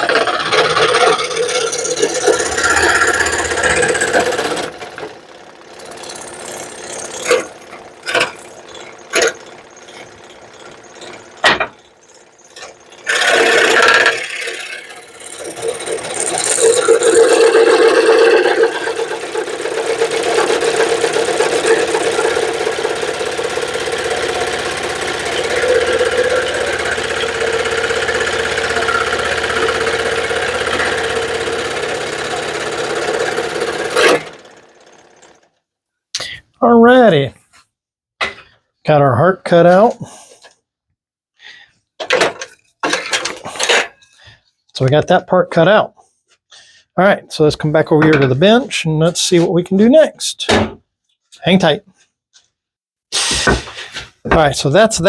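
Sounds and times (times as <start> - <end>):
power saw buzzing: 0.0 - 35.5.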